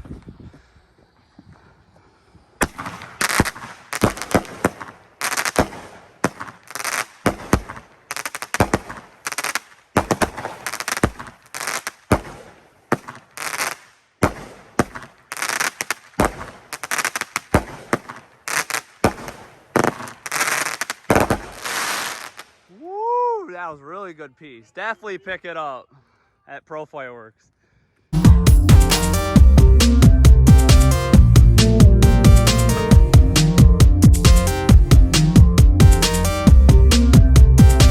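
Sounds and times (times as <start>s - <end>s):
crackling aerial firework breaks: 2.6s - 22.6s.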